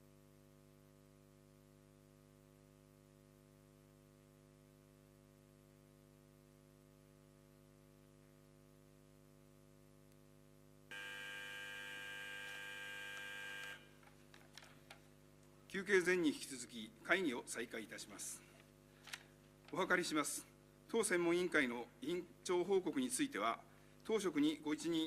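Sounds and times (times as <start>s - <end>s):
low electrical hum: 0.0s - 25.0s
electric buzzer tone: 10.9s - 14.0s.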